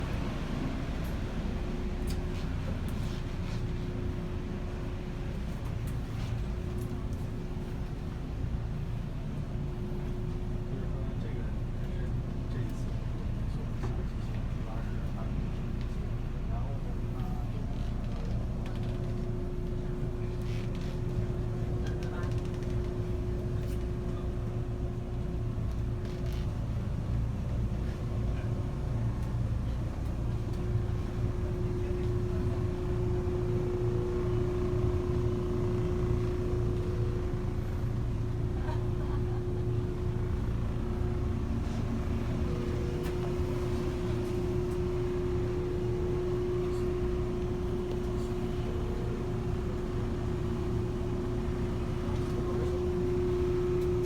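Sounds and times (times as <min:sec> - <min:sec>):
vehicle engine rumbling: 0:30.6 - 0:54.0.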